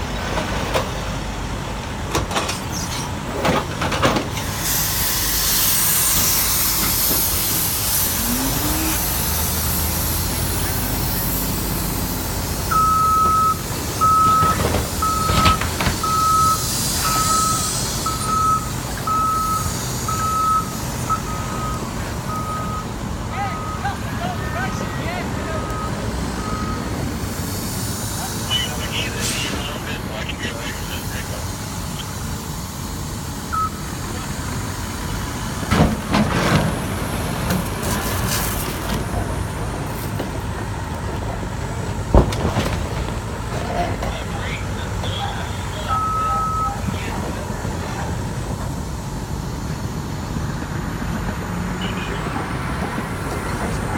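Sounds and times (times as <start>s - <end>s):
heavy equipment engine running: 0.0s - 53.9s
backup alarm beeping: 12.7s - 27.0s, 33.5s - 34.0s, 44.6s - 47.2s
short beep: 45.9s - 46.9s.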